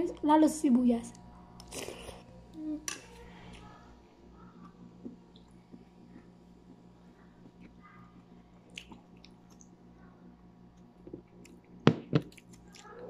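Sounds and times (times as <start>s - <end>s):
chewing with mouth closed: 8.6s - 9.8s, 10.8s - 13.0s.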